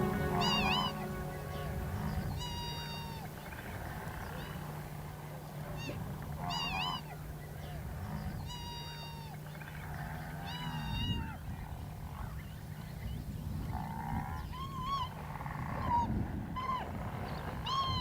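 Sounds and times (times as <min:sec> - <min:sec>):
low steady rumble: 0:00.0 - 0:02.6.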